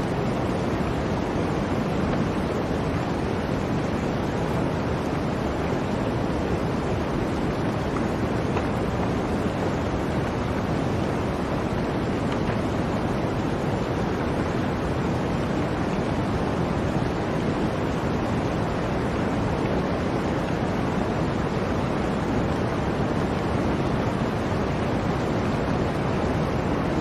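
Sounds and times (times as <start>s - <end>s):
blizzard wind rushing: 0.0s - 27.0s.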